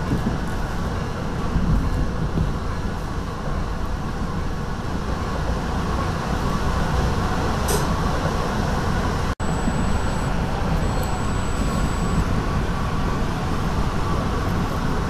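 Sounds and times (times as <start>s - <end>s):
passenger coach rumbling on track: 0.0s - 9.3s
faint high whine: 9.4s - 12.9s.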